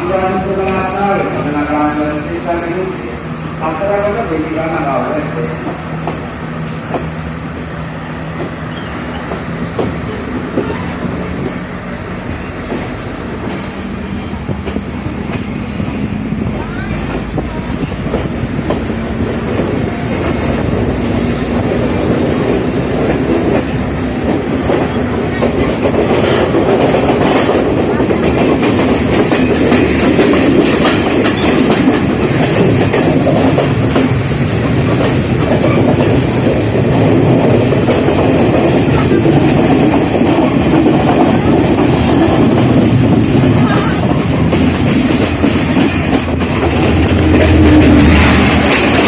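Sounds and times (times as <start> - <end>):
train rumble: 0.0 - 49.0
train wheels clacking: 5.3 - 49.0.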